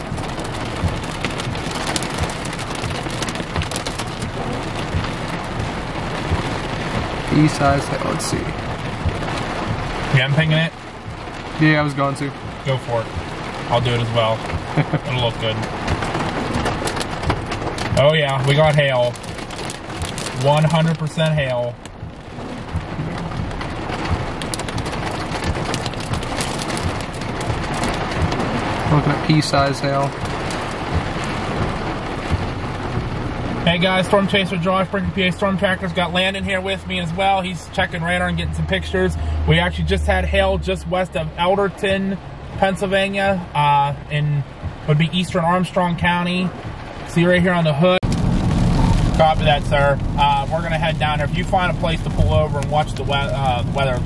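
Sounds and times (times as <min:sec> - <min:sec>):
hail clattering on a vehicle: 0:00.0 - 0:38.4, 0:48.0 - 0:54.0
rain hiss: 0:00.0 - 0:54.0.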